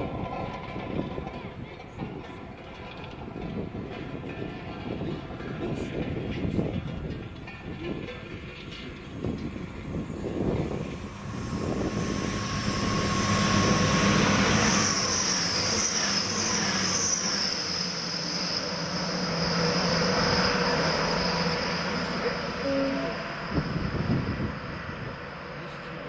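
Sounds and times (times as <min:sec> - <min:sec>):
diesel train passing: 0:00.0 - 0:26.0
high whine: 0:08.8 - 0:26.0.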